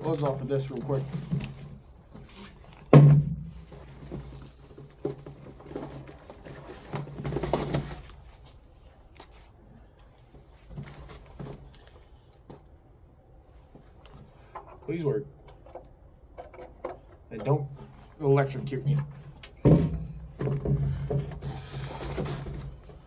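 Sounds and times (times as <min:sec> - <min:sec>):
rustling of gloves and gear: 0:00.0 - 0:15.0.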